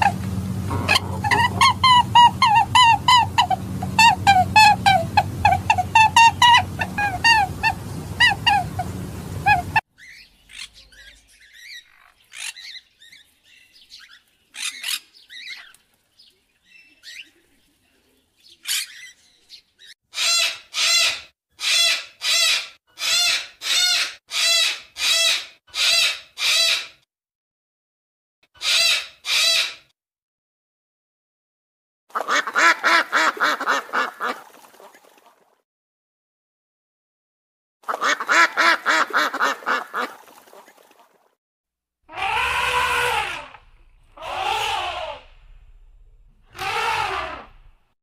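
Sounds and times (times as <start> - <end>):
parrot harsh calls: 0.0 - 12.8, 20.1 - 27.0, 28.6 - 29.9, 42.1 - 45.7, 46.5 - 47.8.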